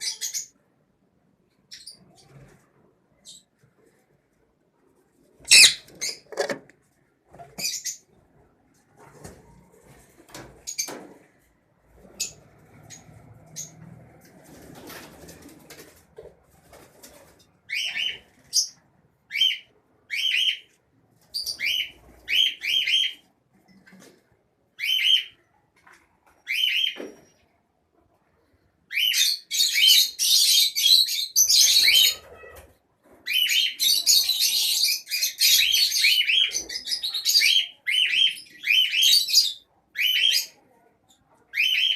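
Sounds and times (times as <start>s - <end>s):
lovebirds chirping: 0.0s - 0.7s, 5.4s - 6.6s, 7.4s - 8.2s.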